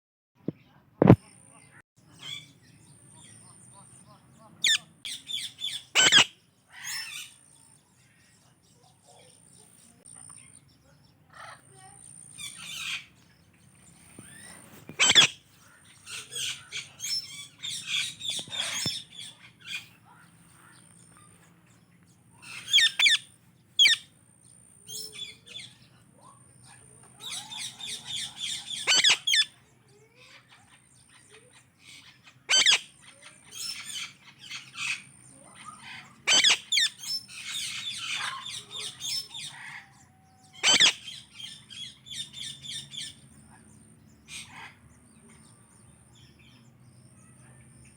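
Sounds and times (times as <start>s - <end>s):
parakeets chattering: 1.6s - 47.9s
sharp loud parakeet squawks: 4.6s - 7.4s, 12.4s - 13.1s, 14.2s - 19.8s, 22.4s - 24.1s, 27.2s - 29.5s, 32.0s - 35.0s, 35.6s - 39.9s, 40.5s - 43.2s.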